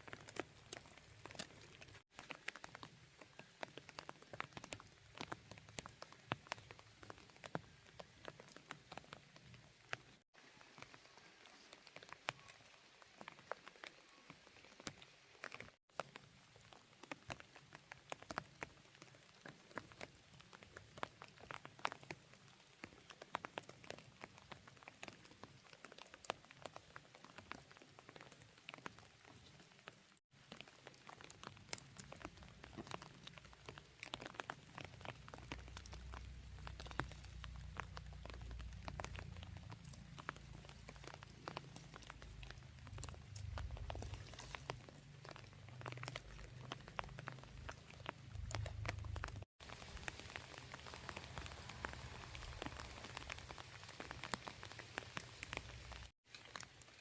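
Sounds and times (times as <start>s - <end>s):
raindrops ticking on hard surface: 0.0s - 57.0s.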